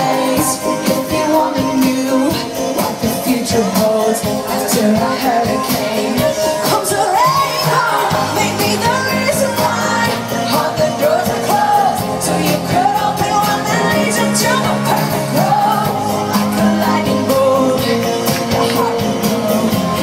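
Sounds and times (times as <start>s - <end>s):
live pop-rock band: 0.0s - 20.0s
steady drum beat: 0.0s - 20.0s
woman singing: 0.0s - 20.0s.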